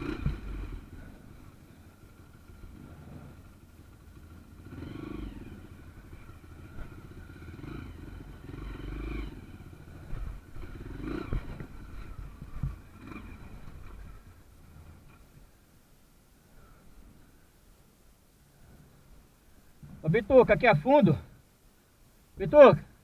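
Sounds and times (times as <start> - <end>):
trail motorcycle engine revving: 0.0 - 15.7, 19.8 - 21.4, 22.4 - 23.0
knocks over rough ground: 10.1 - 12.9.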